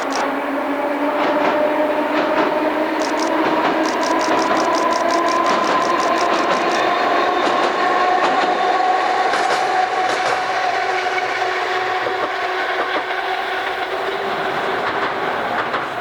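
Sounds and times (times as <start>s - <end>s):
sharp clicks: 0.0s - 0.3s, 3.0s - 6.9s.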